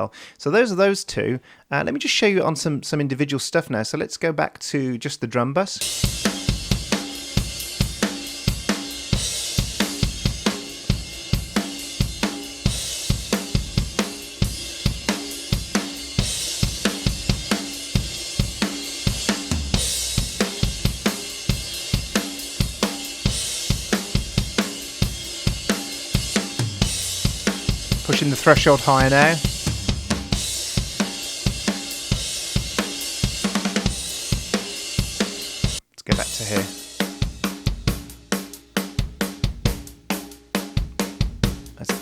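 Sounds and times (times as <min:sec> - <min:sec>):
bright cymbal wash: 0:05.8 - 0:37.3
drum kit groove: 0:05.8 - 0:42.0.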